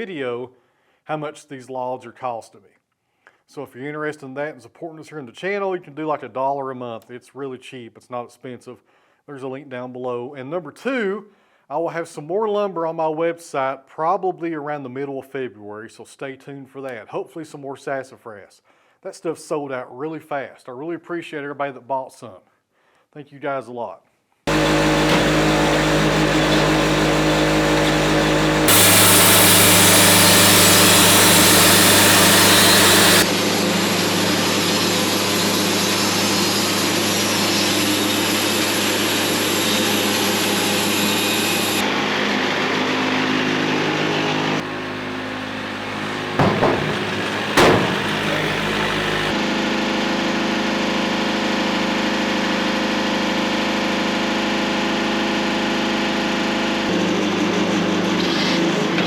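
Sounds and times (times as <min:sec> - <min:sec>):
sharp knocks: 0:24.5 - 0:33.2, 0:44.7 - 0:49.3
saw cutting through log: 0:24.5 - 0:42.8, 0:44.6 - 0:49.4
sawmill engine running: 0:24.5 - 0:49.5, 0:55.6 - 0:59.0.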